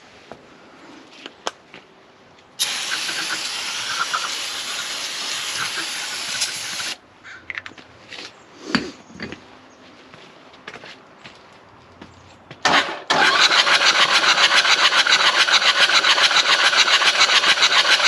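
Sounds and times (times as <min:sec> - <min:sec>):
aerosol spray can hissing: 0:02.6 - 0:07.0.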